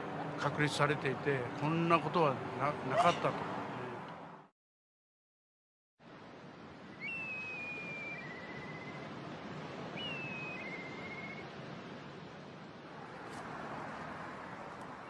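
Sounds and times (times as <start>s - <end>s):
kite whistling call: 6.9s - 9.1s, 9.9s - 11.5s.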